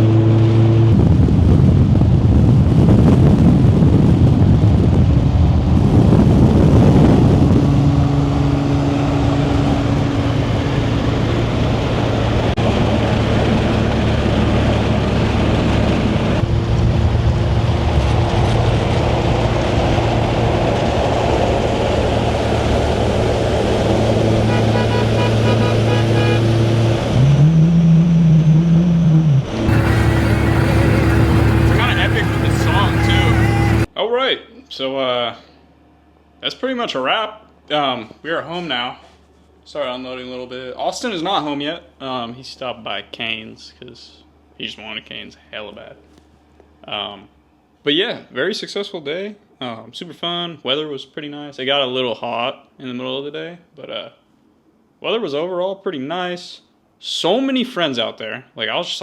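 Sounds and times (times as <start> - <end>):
road and wind noise: 0.0 - 33.9
car engine drone: 5.6 - 33.9.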